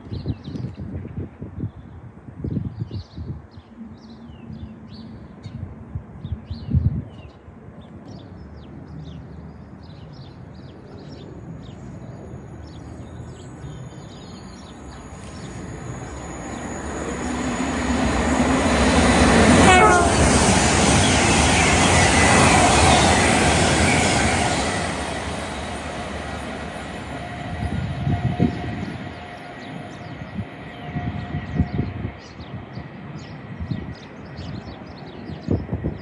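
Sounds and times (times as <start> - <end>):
wind buffeting microphone: 0.0 - 8.0, 11.1 - 36.0
train approaching at speed: 3.4 - 36.0
birds chirping: 8.1 - 35.7.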